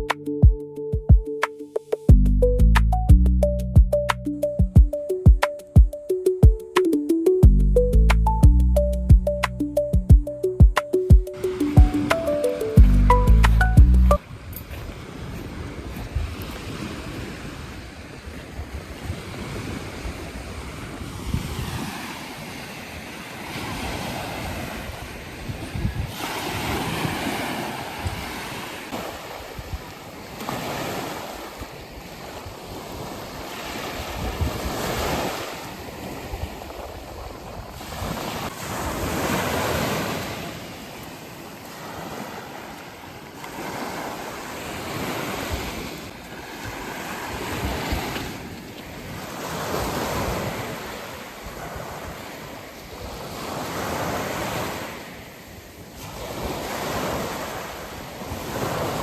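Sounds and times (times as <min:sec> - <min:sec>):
sea waves washing in: 0:08.1 - 0:59.0
wind rumbling on microphone: 0:14.2 - 0:30.4, 0:31.0 - 0:40.0.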